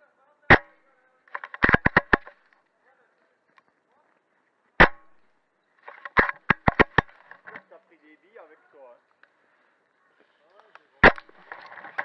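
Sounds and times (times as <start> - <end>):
airsoft gunshots: 0.5 - 0.8, 1.4 - 2.4, 4.8 - 5.2, 11.0 - 11.4.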